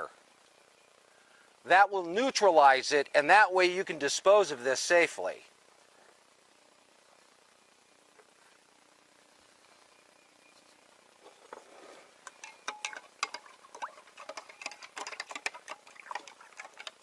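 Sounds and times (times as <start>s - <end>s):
liquid fizzing and crackling: 12.3s - 17.0s.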